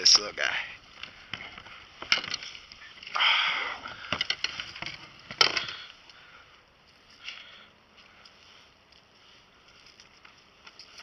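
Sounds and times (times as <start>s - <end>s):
fish handling clicks and knocks: 4.0s - 5.8s.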